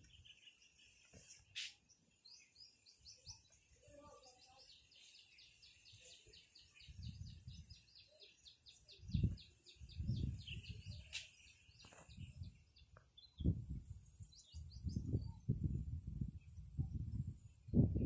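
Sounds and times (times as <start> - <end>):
wind buffeting microphone: 6.7 - 8.0, 8.7 - 18.0.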